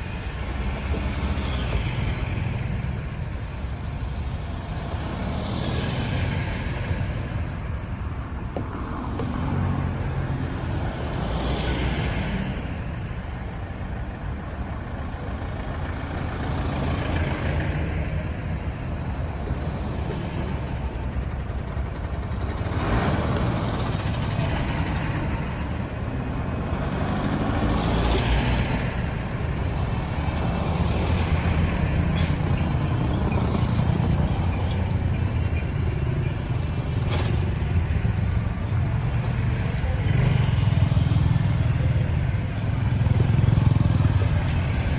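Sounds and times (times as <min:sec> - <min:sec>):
traffic rumble: 0:00.0 - 0:44.9
vehicles swishing past: 0:15.2 - 0:44.9.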